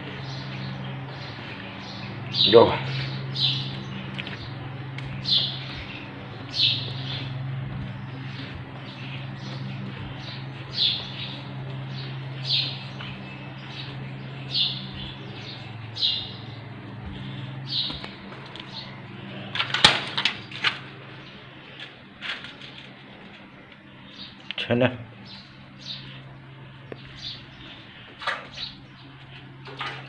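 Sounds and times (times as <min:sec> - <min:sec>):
bird chirps: 0:00.0 - 0:19.1
steady low hum: 0:00.0 - 0:30.0.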